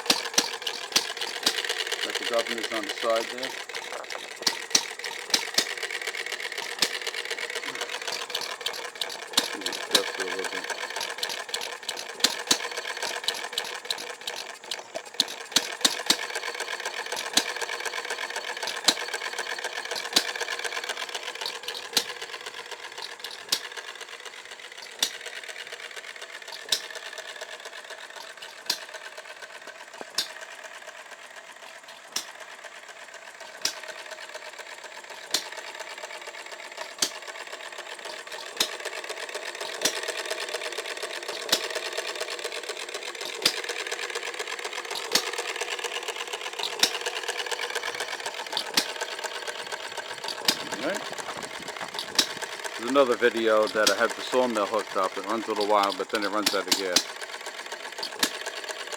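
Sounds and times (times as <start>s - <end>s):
engine clatter: 0.0s - 58.9s.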